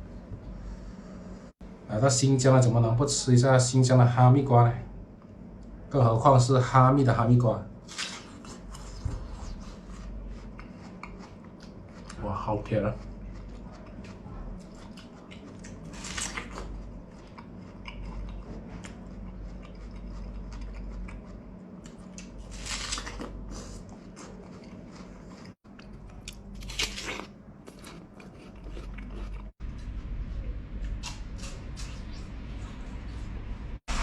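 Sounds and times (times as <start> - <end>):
low hum: 0.0 - 34.0
person chewing: 7.9 - 30.1, 30.8 - 32.2
crunchy bites of melon: 26.3 - 28.0.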